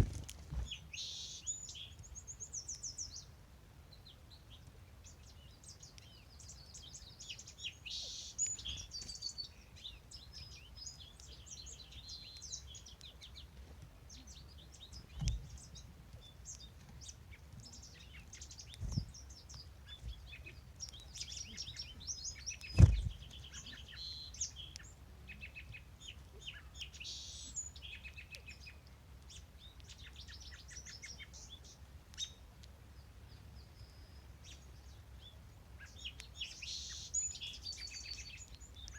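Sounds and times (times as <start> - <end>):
dull thumps: 0.0 - 0.7, 22.7 - 23.2
songbirds singing and chirping: 0.0 - 38.9.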